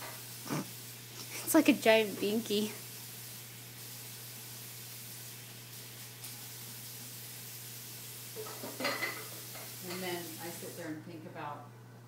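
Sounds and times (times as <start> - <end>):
background hiss: 0.0 - 12.0
person speaking: 1.2 - 2.8.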